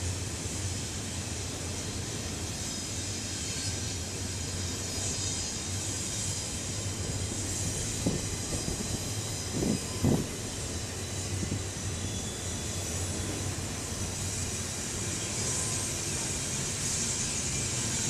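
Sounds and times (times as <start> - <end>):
freight train wheels rumbling on rail: 0.0 - 18.0
high hiss: 0.2 - 18.0
train knocks: 7.0 - 11.7.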